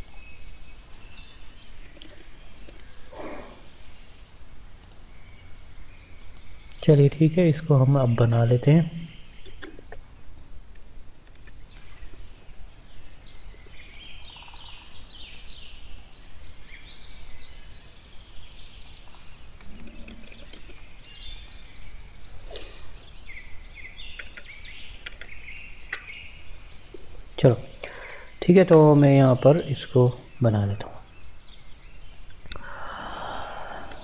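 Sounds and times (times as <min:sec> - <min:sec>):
small birds chirping: 0:00.0 - 0:34.0
faint clicks: 0:04.8 - 0:05.1, 0:15.2 - 0:16.1, 0:24.1 - 0:26.2, 0:32.3 - 0:32.7.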